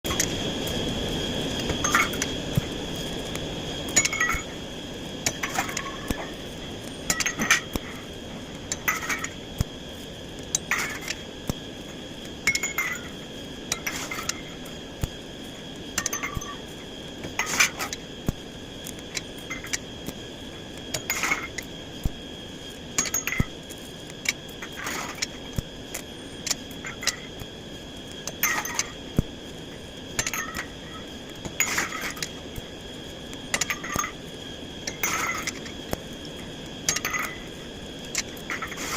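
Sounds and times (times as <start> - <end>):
high ringing: 1.7 - 2.3.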